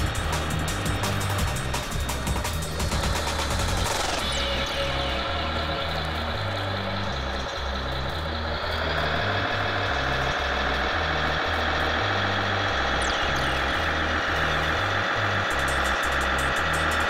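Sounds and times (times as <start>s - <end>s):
deep bass pattern: 0.0s - 17.0s
toy truck motor whining: 3.7s - 17.0s.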